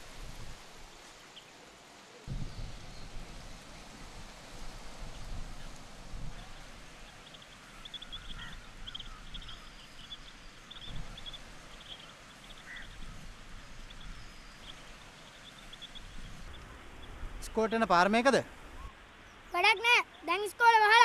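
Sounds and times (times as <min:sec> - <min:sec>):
faint outdoor hiss: 0:00.0 - 0:21.0
birds chirping: 0:06.3 - 0:21.0.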